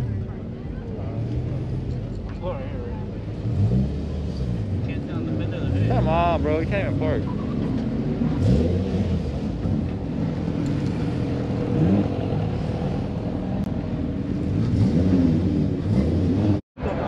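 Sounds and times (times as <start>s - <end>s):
car engines running: 0.0s - 17.0s
engine revs: 3.2s - 16.6s.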